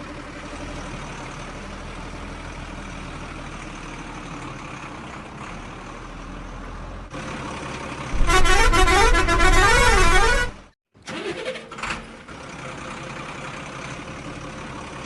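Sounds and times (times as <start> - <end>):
toy truck engine rumble: 7.2 - 15.0
warbling electronic horn tune: 8.2 - 10.6.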